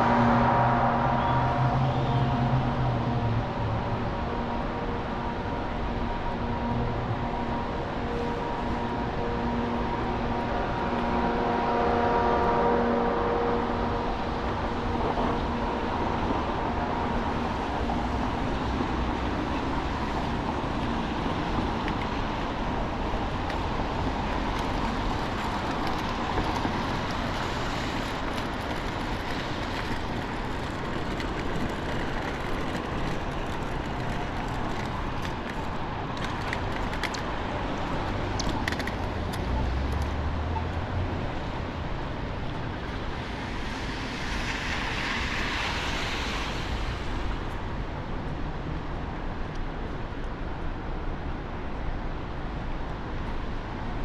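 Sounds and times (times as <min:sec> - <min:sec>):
traffic on wet roads: 0:00.0 - 0:54.0.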